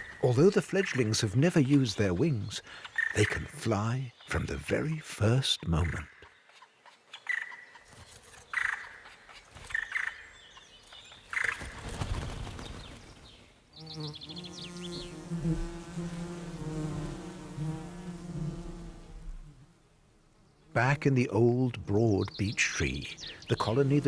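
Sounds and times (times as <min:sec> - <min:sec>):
honeybees buzzing: 0:13.8 - 0:19.8, 0:22.9 - 0:24.0.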